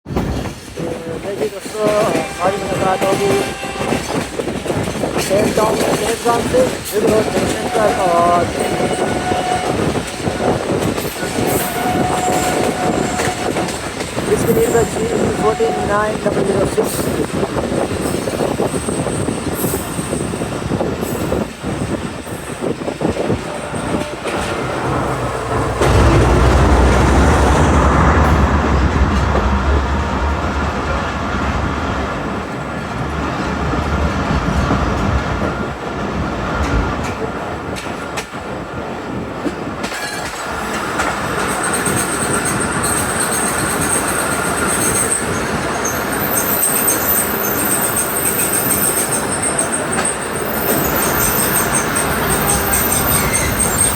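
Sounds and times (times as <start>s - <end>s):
train wheels rumbling and clattering: 0.0s - 53.9s
high wheel squeal: 7.4s - 16.2s, 41.3s - 53.9s
locomotive engine drone: 23.5s - 33.7s.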